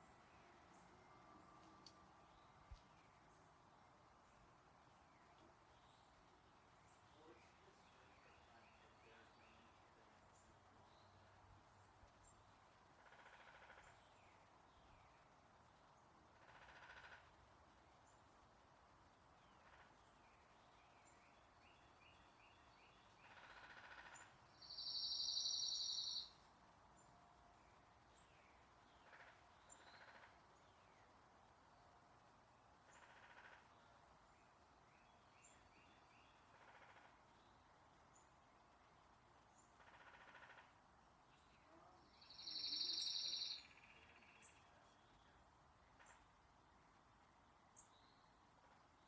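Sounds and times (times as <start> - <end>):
faint outdoor hiss: 0.0 - 49.0
faint high bird chirps: 24.6 - 26.4, 42.0 - 45.3
songbird high trill: 24.7 - 26.3, 42.2 - 43.6
bird chirps and buzzy call: 41.4 - 44.6.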